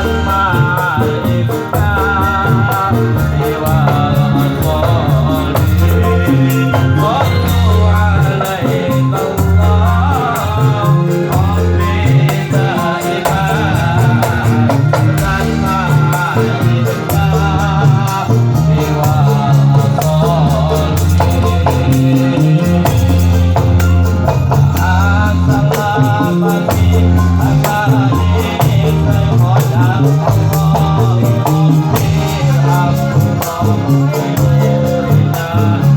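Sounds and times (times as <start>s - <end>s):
person singing ornamented melody: 0.0s - 23.6s
sustained low bass notes: 0.0s - 35.9s.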